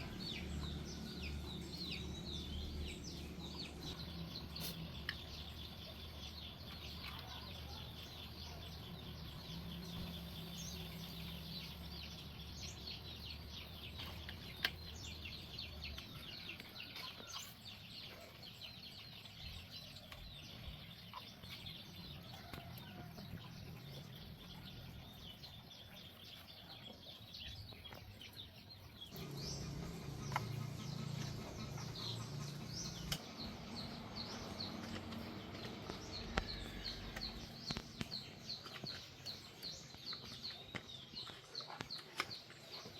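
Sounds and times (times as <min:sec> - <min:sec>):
birds chirping: 0:00.0 - 0:42.9
low steady hum: 0:29.1 - 0:38.0.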